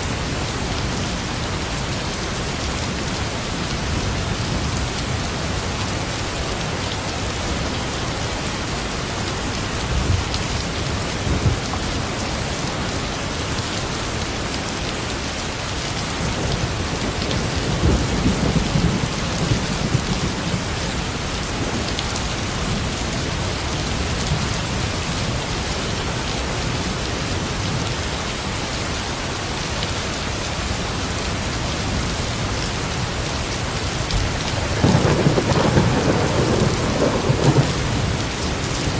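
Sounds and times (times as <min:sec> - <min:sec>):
steady rain falling: 0:00.0 - 0:38.9
thunder rumbling: 0:34.5 - 0:38.9.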